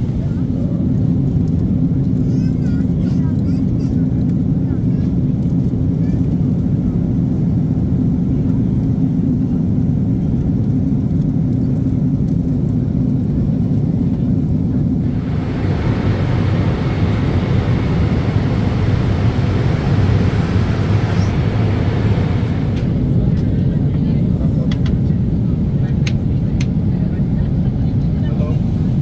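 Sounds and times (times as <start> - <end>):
airliner cabin rumble: 0.0 - 29.0
rushing hiss: 15.1 - 23.1.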